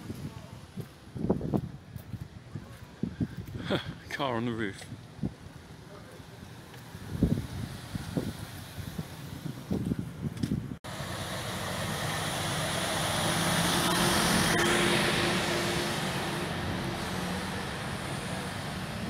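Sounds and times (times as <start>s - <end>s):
vehicle engine hum: 4.8s - 19.0s.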